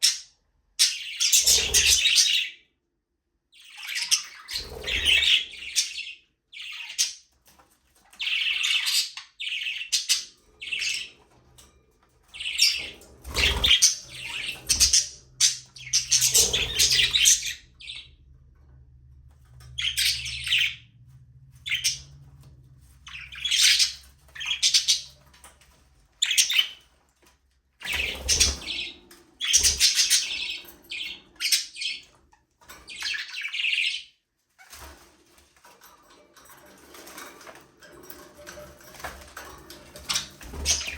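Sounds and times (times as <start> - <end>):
budgerigars chattering and chirping: 0.0 - 2.5, 3.6 - 7.2, 8.2 - 11.1, 12.3 - 18.1, 19.8 - 20.8, 21.6 - 22.2, 23.0 - 25.2, 26.2 - 26.8, 27.8 - 32.1, 40.0 - 40.9.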